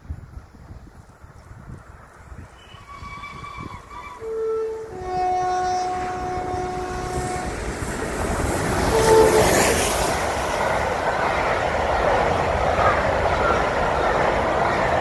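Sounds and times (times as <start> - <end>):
train passing at speed: 0.0 - 15.0
train horn blasts: 2.6 - 7.7, 8.8 - 9.9.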